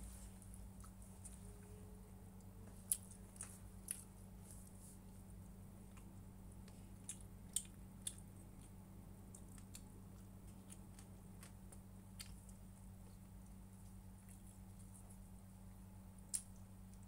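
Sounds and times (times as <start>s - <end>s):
low electrical hum: 0.0s - 17.0s
chewing and mouth clicks: 5.8s - 15.2s.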